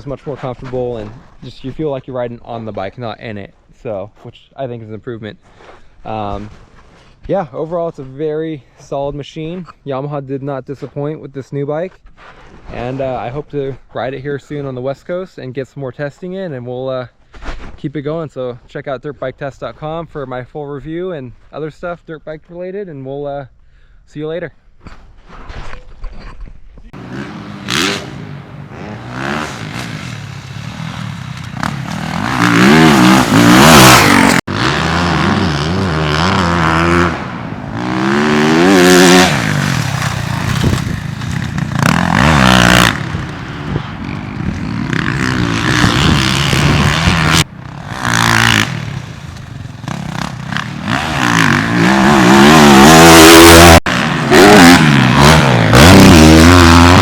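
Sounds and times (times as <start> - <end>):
motorcycle engine revving off-road: 26.9 - 57.0.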